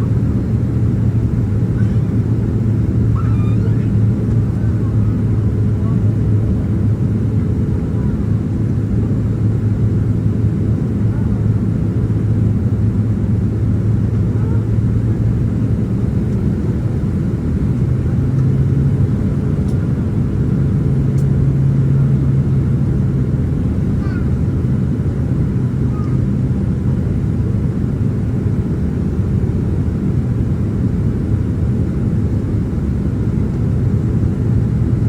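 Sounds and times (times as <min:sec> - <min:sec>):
airplane cabin engine drone: 0:00.0 - 0:35.0.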